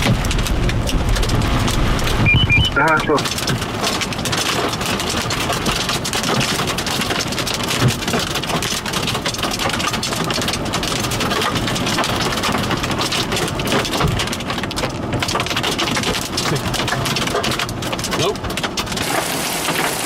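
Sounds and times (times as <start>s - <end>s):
hail and rain clattering: 0.0s - 20.0s.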